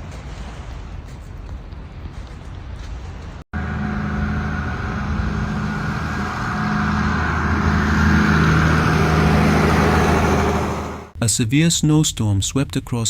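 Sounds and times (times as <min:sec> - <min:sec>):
vehicle engine running: 0:03.5 - 0:11.2.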